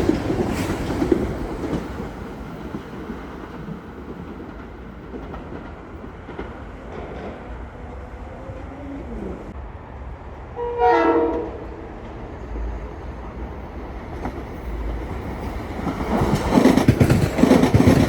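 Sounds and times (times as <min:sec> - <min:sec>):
train rumbling: 0:00.0 - 0:18.0
wheels clicking on rail joints: 0:13.2 - 0:18.0.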